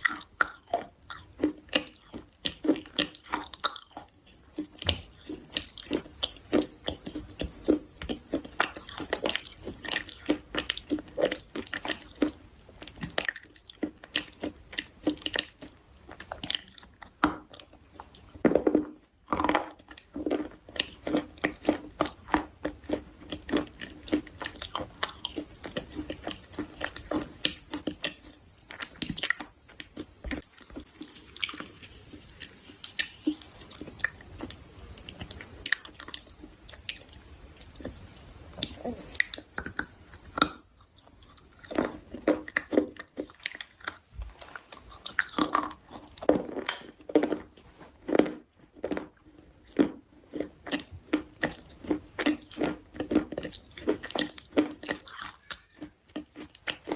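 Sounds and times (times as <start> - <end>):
chewing crunchy food: 0.0 - 56.9.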